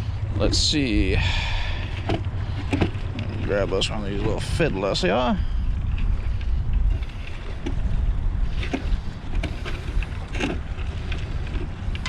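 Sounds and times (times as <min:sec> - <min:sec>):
wind buffeting microphone: 0:00.0 - 0:12.0
container clicks and scrapes: 0:01.7 - 0:04.5, 0:06.0 - 0:12.0.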